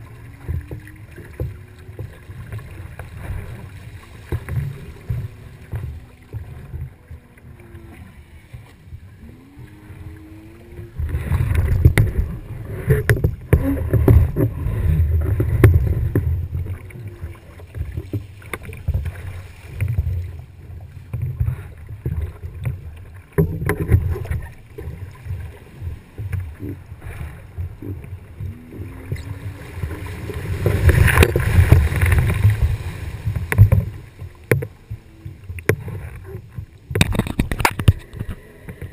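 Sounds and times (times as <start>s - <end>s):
low rumble of wind and water: 0.0s - 38.9s
water rushing along boat hull: 0.0s - 38.9s.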